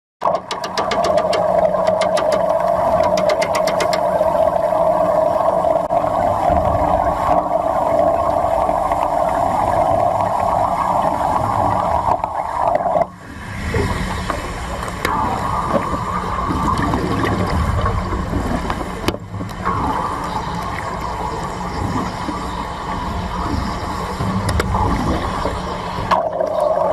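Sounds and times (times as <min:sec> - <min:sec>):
sharp crackling clicks: 0:00.2 - 0:04.3.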